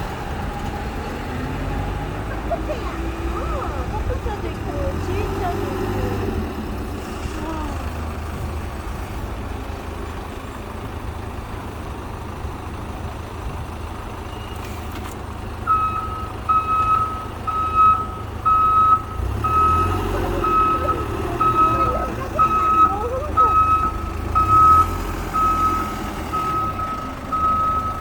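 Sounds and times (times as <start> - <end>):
diesel engine running: 0.0 - 28.0
reversing alarm beeping: 15.7 - 28.0.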